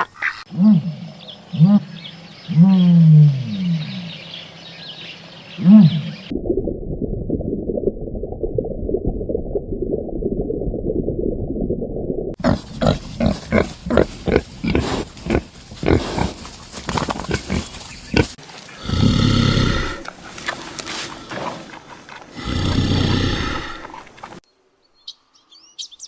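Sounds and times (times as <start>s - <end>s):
animal grunting: 12.4s - 24.3s.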